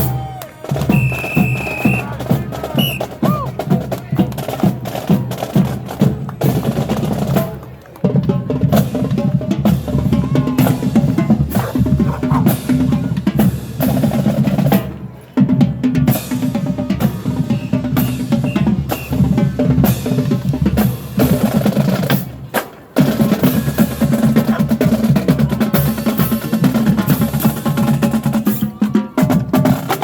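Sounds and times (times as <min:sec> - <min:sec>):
drumline playing: 0:00.0 - 0:30.0
short high whistle: 0:00.9 - 0:02.1, 0:02.8 - 0:03.1, 0:17.6 - 0:19.2.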